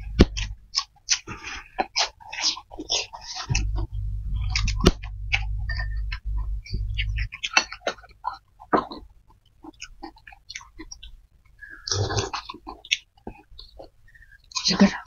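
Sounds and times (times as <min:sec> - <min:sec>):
low rumble: 0:00.0 - 0:00.6, 0:03.5 - 0:07.6
noodles being chewed: 0:00.0 - 0:03.5, 0:05.3 - 0:14.7.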